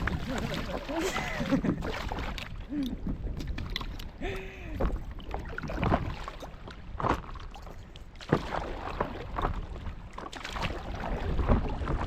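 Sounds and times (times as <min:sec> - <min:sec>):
paddle splashing in water: 0:00.0 - 0:12.0
wind rumble on microphone: 0:00.0 - 0:12.0.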